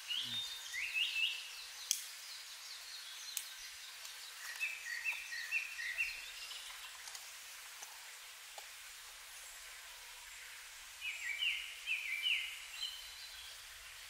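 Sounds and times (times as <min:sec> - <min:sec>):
bird singing whistled notes: 0:00.0 - 0:06.6, 0:11.0 - 0:13.6.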